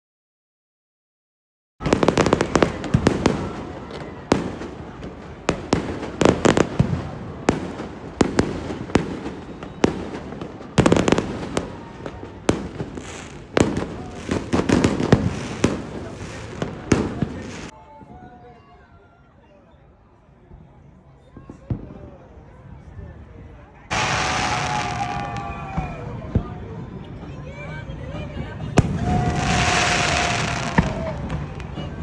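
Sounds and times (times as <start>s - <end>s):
fireworks bangs: 1.8s - 17.7s, 23.9s - 26.5s, 28.8s - 32.0s
fireworks crackling: 1.8s - 17.8s, 23.9s - 26.2s, 28.8s - 32.0s.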